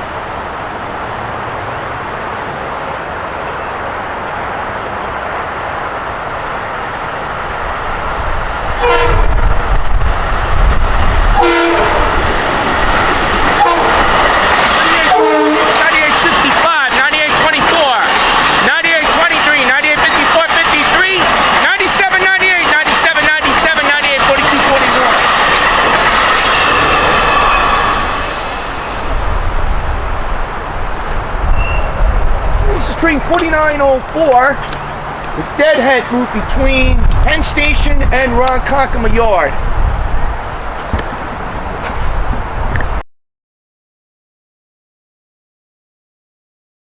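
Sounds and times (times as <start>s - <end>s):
electric train rumble: 0.0s - 43.0s
train horn blasts: 8.8s - 9.7s, 11.4s - 12.3s, 13.5s - 14.2s, 14.8s - 16.2s, 21.0s - 36.6s
high whine: 20.2s - 43.0s.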